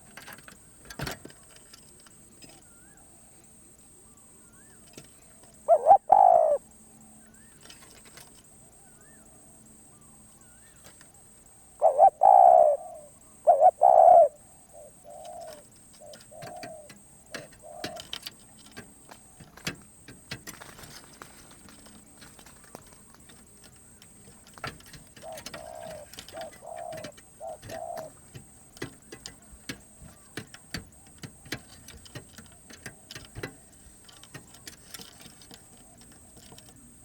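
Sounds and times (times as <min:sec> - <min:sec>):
dove cooing: 0:02.4 - 0:37.0.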